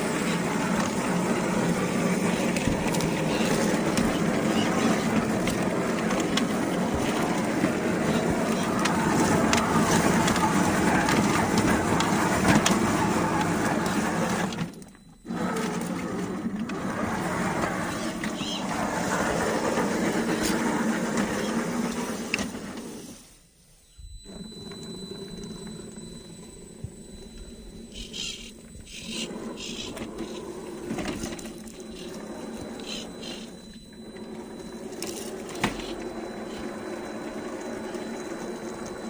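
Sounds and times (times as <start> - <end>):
electric motor and gears whining: 0.0 - 39.0.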